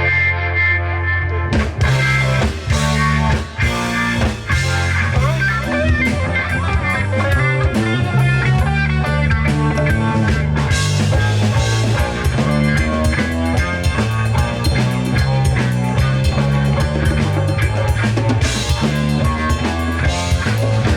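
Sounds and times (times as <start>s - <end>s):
electric guitar bending notes: 0.0s - 20.9s
live band playing instrumental: 1.5s - 20.9s.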